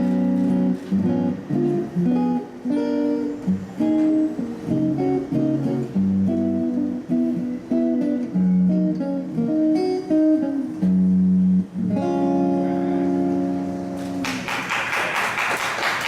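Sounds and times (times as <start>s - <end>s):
solo jazz guitar: 0.0s - 14.6s
audience applause: 14.2s - 16.0s.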